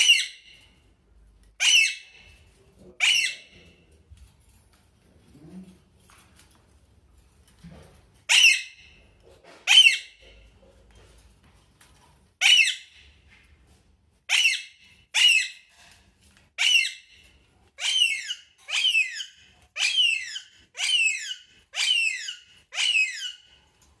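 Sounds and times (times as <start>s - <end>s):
parrot shrill calls: 0.0s - 0.7s, 1.6s - 2.3s, 3.0s - 3.6s, 8.3s - 8.9s, 9.7s - 10.2s, 12.4s - 13.2s, 14.3s - 15.7s, 16.6s - 23.6s.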